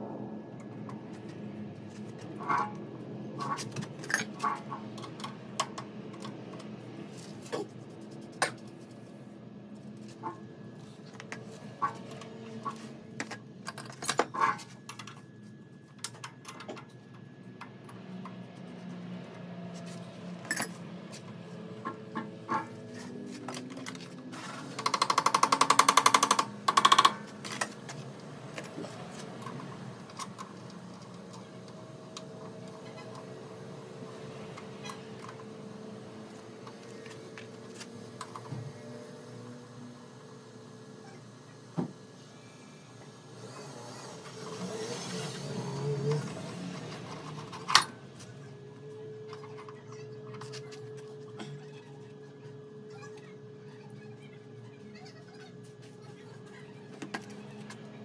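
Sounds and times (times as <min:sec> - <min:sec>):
rapid mechanical rattle: 0:24.4 - 0:27.8.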